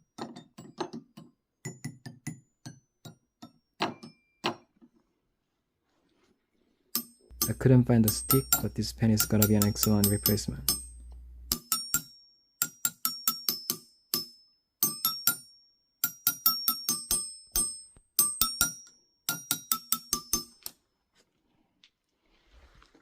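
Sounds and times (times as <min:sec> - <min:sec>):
glockenspiel struck with a pen: 0:01.7 - 0:04.6, 0:07.0 - 0:20.8.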